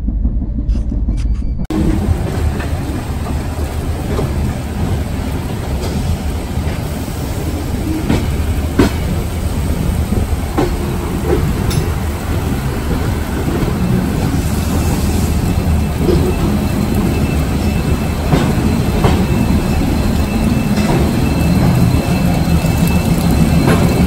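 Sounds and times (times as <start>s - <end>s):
train wheels rumbling on rails: 0.0s - 24.0s
wheels clicking over rail joints: 1.7s - 24.0s.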